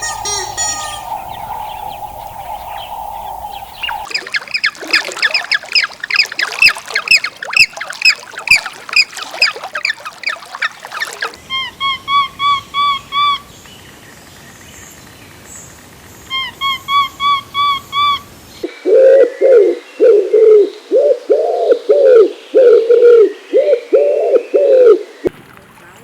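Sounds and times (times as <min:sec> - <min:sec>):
fast lower bird calls: 0:00.0 - 0:13.6
high arched bird calls: 0:00.0 - 0:13.6.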